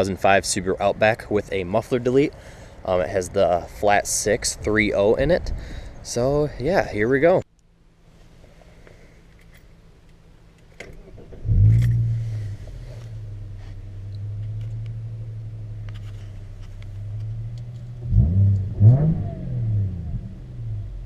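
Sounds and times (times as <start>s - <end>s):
car engine starting and idling: 7.6s - 21.0s.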